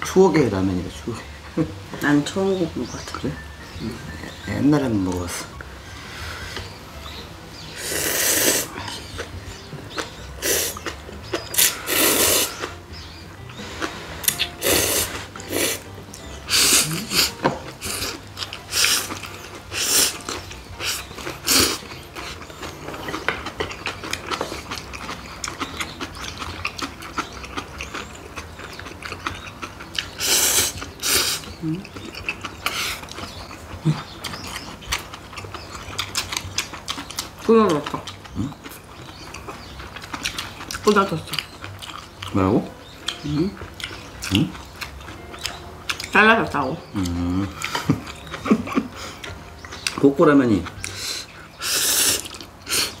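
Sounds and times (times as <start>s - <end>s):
wet chewing and lip-smacking: 7.6s - 53.0s
noodle slurping: 7.7s - 8.8s, 10.4s - 10.8s, 11.5s - 12.8s, 13.6s - 15.9s, 16.5s - 22.5s, 30.0s - 31.6s, 51.0s - 53.0s.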